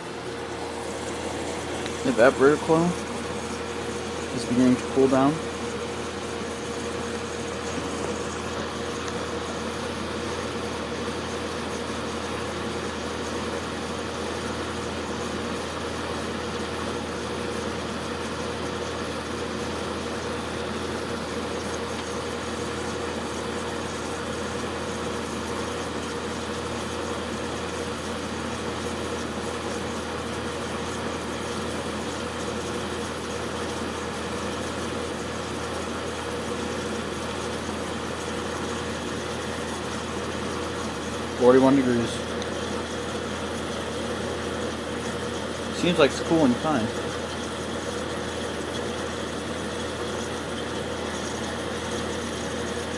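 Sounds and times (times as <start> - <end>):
fan air rushing: 0.0 - 9.4, 39.3 - 47.9
dehumidifier compressor hum: 0.0 - 52.9.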